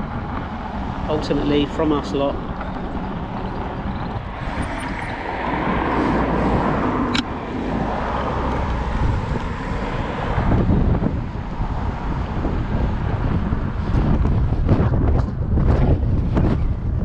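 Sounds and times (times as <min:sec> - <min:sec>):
low traffic rumble: 0:00.0 - 0:17.0
car passing close by: 0:00.6 - 0:12.6.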